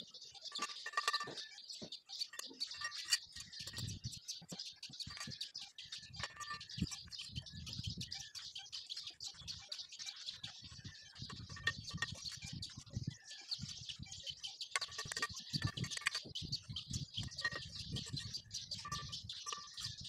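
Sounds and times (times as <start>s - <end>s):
small birds chirping busily: 0.0s - 20.0s.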